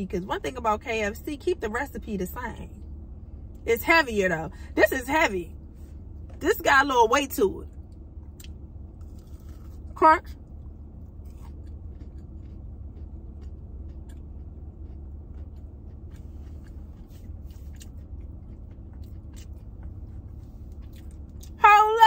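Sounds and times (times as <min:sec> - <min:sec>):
low hum: 0:00.0 - 0:22.0
person chewing crunchy food: 0:07.9 - 0:21.6.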